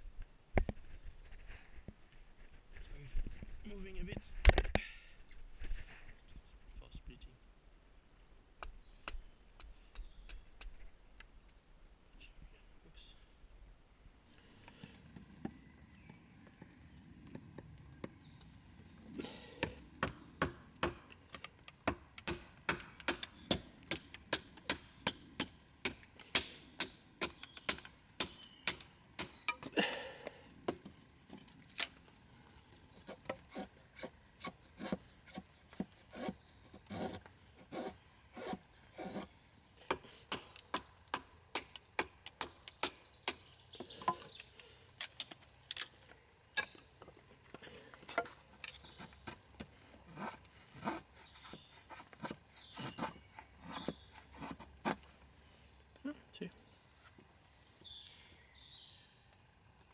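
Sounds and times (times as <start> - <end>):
hand tool working damp wood: 32.7 - 44.4, 46.6 - 55.2.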